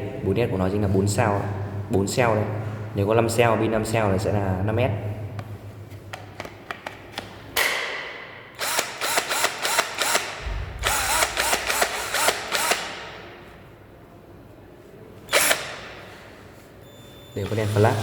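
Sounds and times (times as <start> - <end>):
cordless drill motor whining: 10.8 - 12.8, 15.3 - 15.6.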